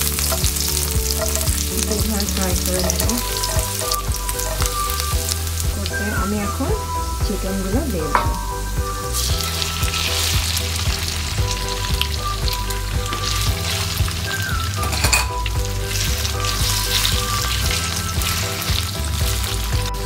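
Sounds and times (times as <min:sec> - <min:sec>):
spatula stirring: 0:00.0 - 0:06.1
chicken sizzling in oil: 0:00.0 - 0:20.0.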